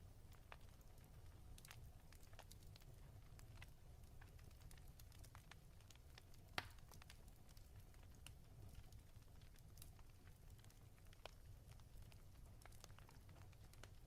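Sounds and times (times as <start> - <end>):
wood fire crackling: 0.0 - 14.0
fire pops: 0.3 - 14.0.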